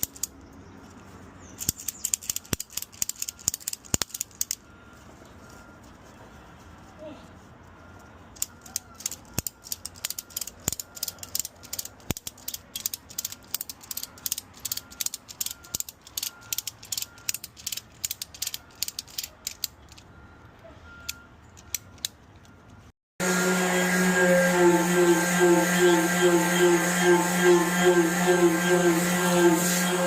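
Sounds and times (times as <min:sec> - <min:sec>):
sharp mechanical clicks: 0:00.0 - 0:04.7, 0:08.4 - 0:20.1, 0:21.0 - 0:22.9.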